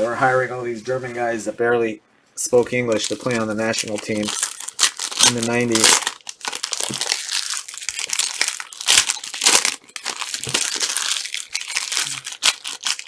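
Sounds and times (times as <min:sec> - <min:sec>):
packaging crinkling: 0:02.6 - 0:13.0.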